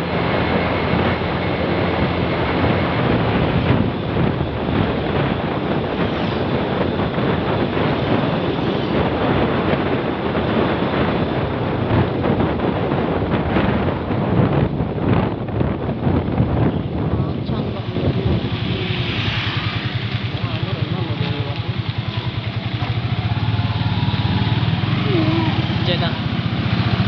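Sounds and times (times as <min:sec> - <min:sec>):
vehicle and road noise: 0:00.0 - 0:27.0
wind rushing over microphone: 0:00.0 - 0:27.0.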